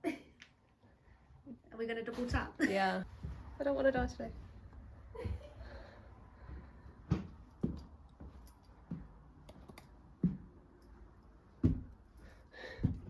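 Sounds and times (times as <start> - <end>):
footsteps climbing stairs: 5.1 - 10.7, 11.4 - 13.0.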